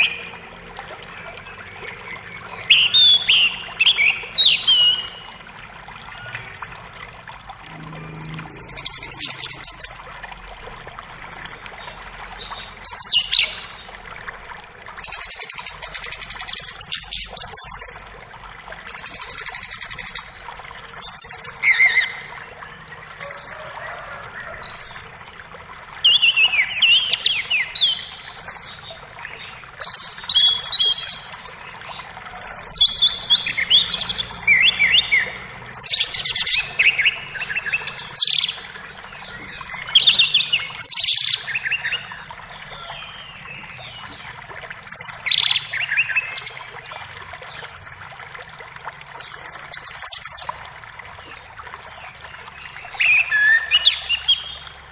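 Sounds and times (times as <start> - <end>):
forest birds singing: 0.0 - 5.4, 26.0 - 44.3, 44.9 - 48.0, 49.2 - 54.8
creek running faintly: 0.0 - 54.9.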